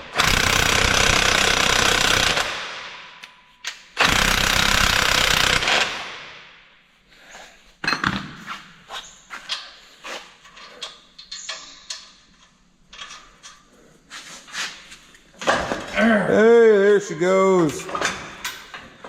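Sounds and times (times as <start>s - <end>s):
power impact tool hammering: 0.1s - 2.7s, 4.0s - 6.2s.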